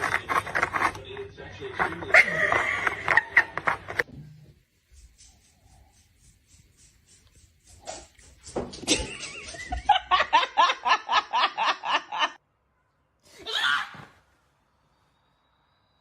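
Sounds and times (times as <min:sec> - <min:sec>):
person laughing hard: 0:02.1 - 0:03.6.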